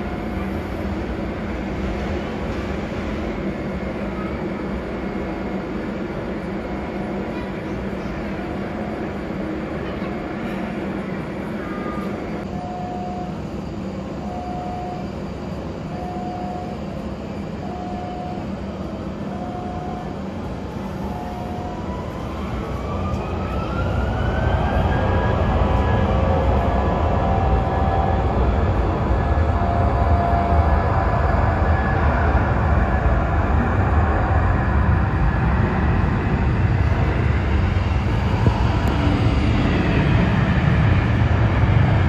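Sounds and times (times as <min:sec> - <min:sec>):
electric train rumble: 0:00.0 - 0:42.0
short beeps: 0:11.7 - 0:13.4, 0:14.2 - 0:15.1, 0:15.9 - 0:16.8, 0:17.6 - 0:18.5, 0:19.3 - 0:20.2
rising whine: 0:19.2 - 0:42.0.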